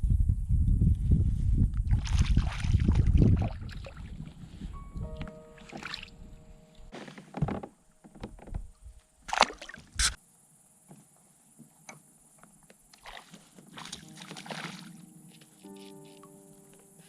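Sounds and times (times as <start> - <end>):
water sloshing: 1.9 - 4.3, 5.6 - 6.2, 9.3 - 10.2, 13.0 - 15.1.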